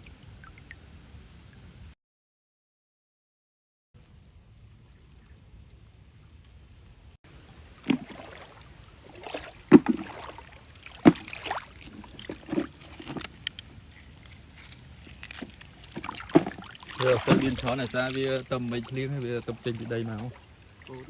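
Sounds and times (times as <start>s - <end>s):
shallow water splashing: 7.3s - 21.0s.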